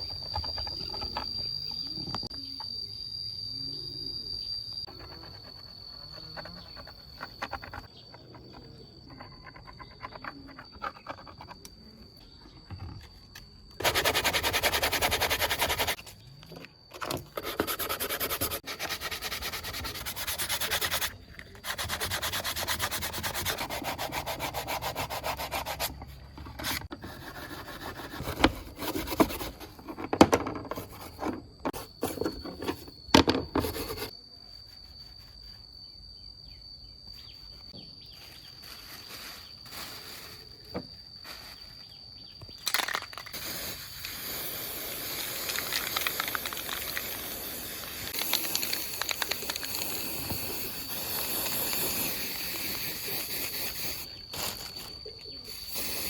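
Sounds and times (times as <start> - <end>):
abrasive sanding or scrubbing: 13.8 - 16.0, 17.4 - 26.0.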